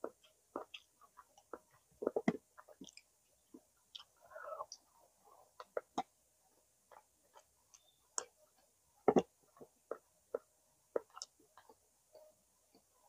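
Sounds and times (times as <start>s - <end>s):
mouth clicks and smacks: 0.0s - 4.9s, 9.1s - 11.7s
person chewing food: 0.0s - 4.9s, 6.9s - 11.8s.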